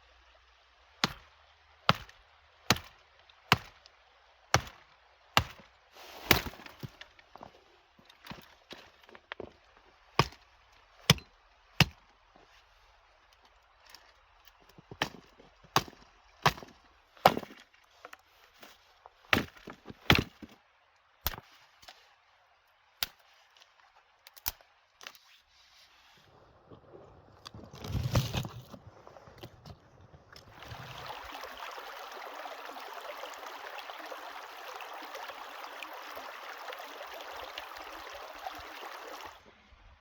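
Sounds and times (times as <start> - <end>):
blade chopping wood: 1.0 - 1.2, 1.9 - 2.9, 3.5 - 3.8, 4.6 - 4.8, 5.4 - 5.6, 6.2 - 7.0, 10.2 - 10.4, 15.0 - 17.6, 19.3 - 20.6.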